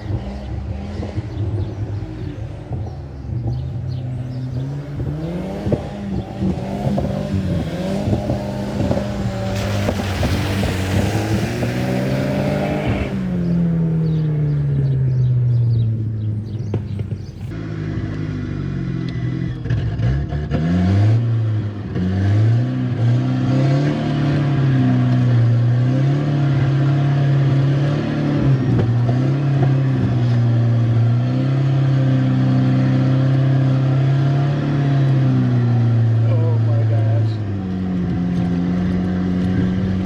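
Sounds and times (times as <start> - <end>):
rally car engine revving: 0.0 - 40.0.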